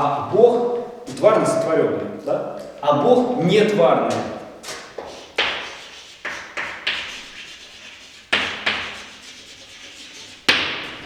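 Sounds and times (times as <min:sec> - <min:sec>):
sharp knocks: 0:08.3 - 0:09.2, 0:10.5 - 0:11.0.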